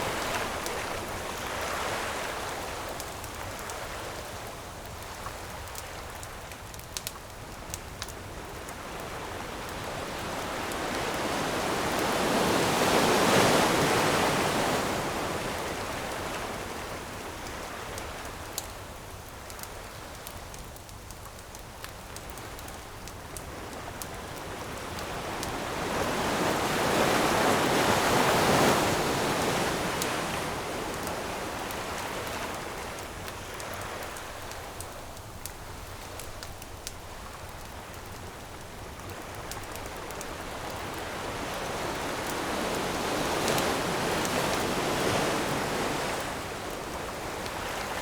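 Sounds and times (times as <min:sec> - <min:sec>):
ocean waves breaking: 0:00.0 - 0:02.8, 0:08.9 - 0:17.1, 0:24.2 - 0:35.0, 0:39.5 - 0:48.0
campfire crackling: 0:00.0 - 0:48.0.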